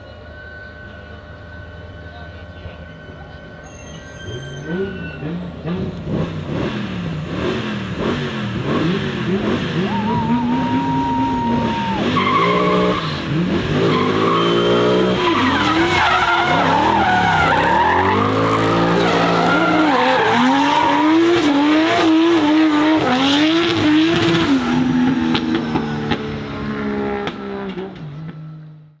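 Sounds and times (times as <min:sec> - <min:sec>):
tyre squeal: 0:03.1 - 0:05.5, 0:09.8 - 0:23.5
race car engines revving: 0:04.2 - 0:29.0.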